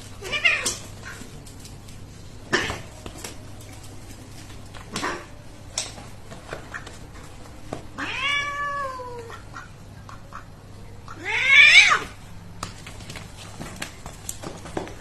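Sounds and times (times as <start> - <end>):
cat meowing: 0.2 - 0.8, 8.0 - 9.4, 11.1 - 12.2.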